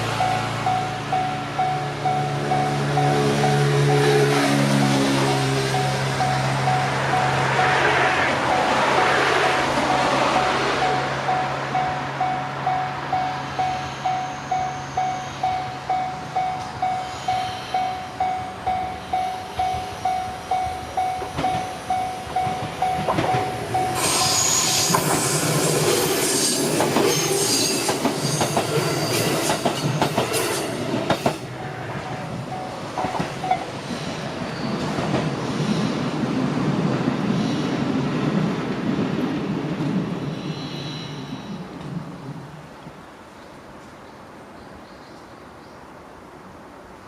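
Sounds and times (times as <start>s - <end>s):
level-crossing warning bell: 0.0s - 34.3s
high wheel squeal: 0.3s - 32.8s
train wheels clicking over rail joints: 19.4s - 36.0s.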